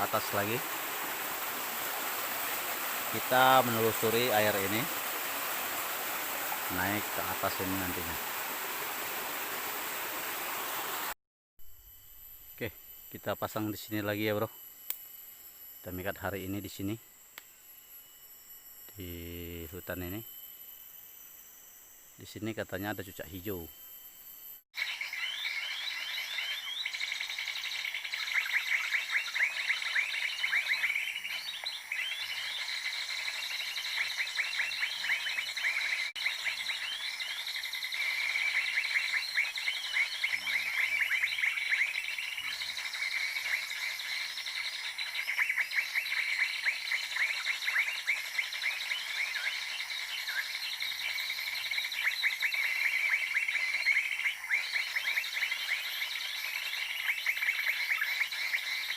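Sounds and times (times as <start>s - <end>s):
bird chirping and trilling: 24.8s - 58.9s.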